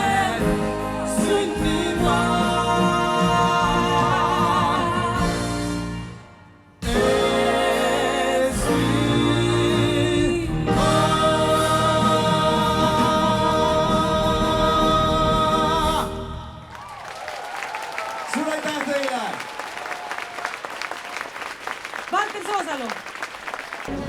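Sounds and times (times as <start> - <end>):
choir singing sustained chords: 0.0 - 16.7.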